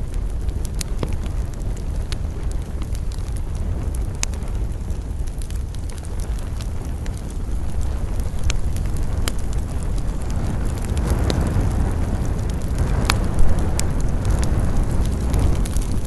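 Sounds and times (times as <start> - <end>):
campfire crackling: 0.0 - 16.0
wind rushing: 6.0 - 16.0.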